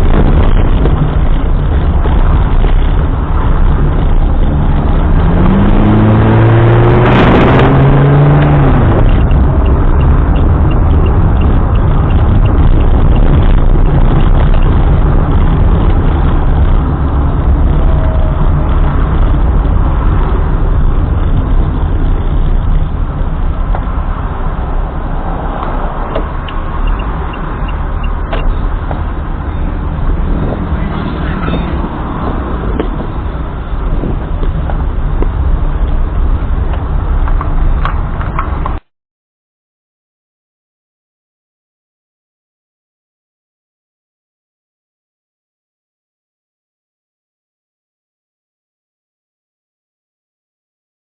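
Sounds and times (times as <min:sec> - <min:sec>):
engine accelerating: 0:00.0 - 0:37.0
car engine and road rumble: 0:00.0 - 0:38.9.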